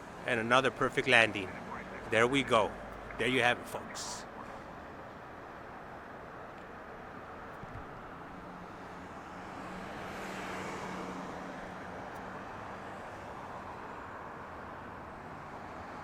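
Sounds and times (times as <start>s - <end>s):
faint low hum: 0.0s - 4.8s
distant engine rumble: 0.3s - 4.6s.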